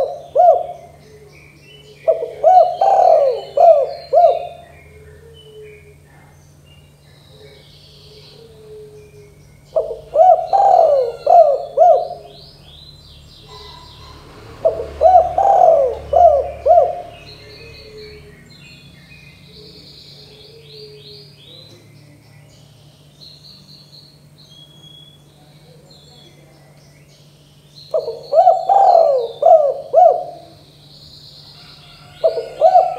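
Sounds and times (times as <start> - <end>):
dove cooing: 0.0 - 12.8, 13.4 - 18.6, 19.4 - 21.8, 27.9 - 30.8, 31.5 - 32.9
small birds chirping: 0.0 - 32.9.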